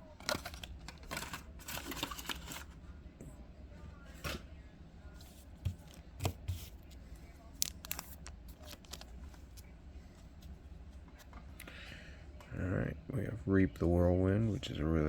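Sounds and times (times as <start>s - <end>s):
cards snapping: 7.6s - 9.1s
foil wrapper crinkling: 7.6s - 9.2s.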